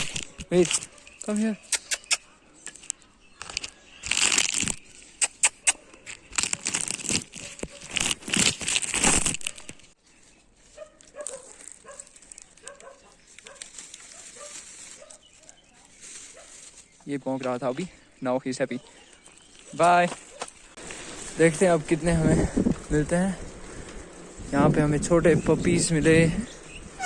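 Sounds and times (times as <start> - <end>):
paper bag rustling and crinkling: 0.0 - 1.4, 3.4 - 5.2, 6.0 - 17.7, 19.2 - 25.8.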